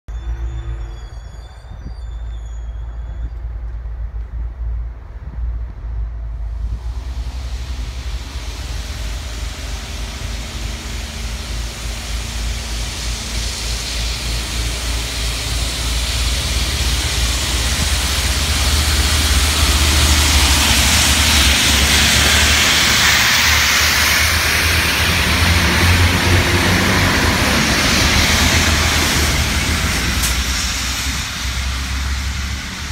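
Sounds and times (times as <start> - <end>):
diesel locomotive engine rumbling: 0.0 - 32.9
water jets hissing: 6.6 - 32.9.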